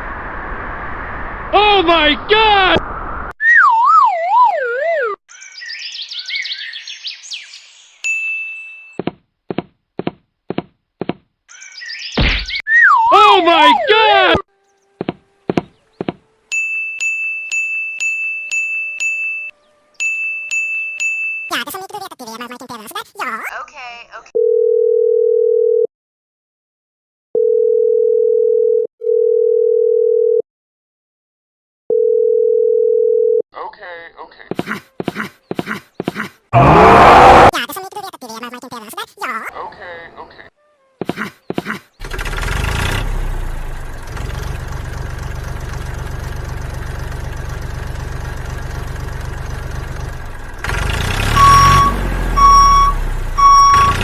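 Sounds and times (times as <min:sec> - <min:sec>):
descending wavering whistle: 0:03.4 - 0:05.2
high ding: 0:16.5 - 0:21.5
electronic bleep tone: 0:51.4 - 0:54.0.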